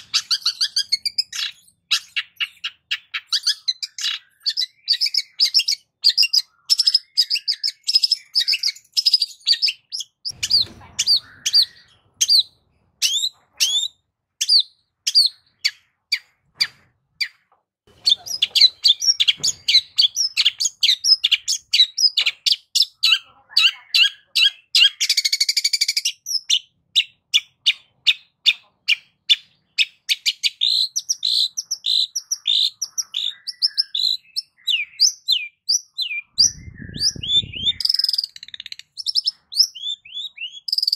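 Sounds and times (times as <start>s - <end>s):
bird singing chirps and whistles: 0.0s - 16.3s, 28.9s - 40.9s.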